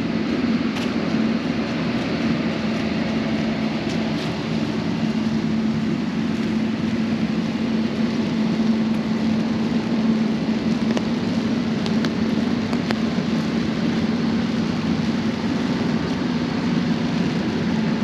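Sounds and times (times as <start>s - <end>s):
vehicle engine rumble: 0.0s - 18.0s.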